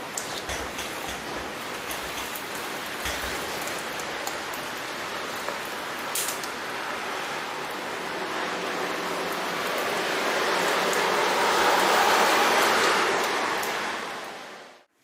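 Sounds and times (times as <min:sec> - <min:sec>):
heavy rain falling: 0:00.0 - 0:14.9.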